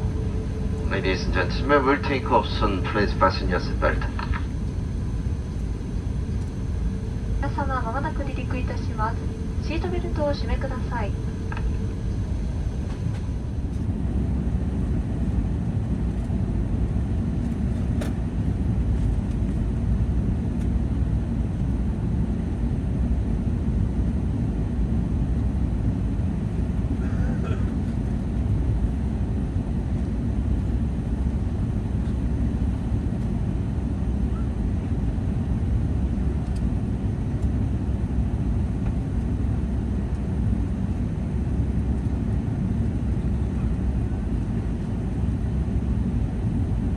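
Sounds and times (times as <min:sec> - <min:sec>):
aircraft cabin rumble: 0:00.0 - 0:46.9
faint clicks: 0:11.5 - 0:11.9, 0:36.4 - 0:36.7.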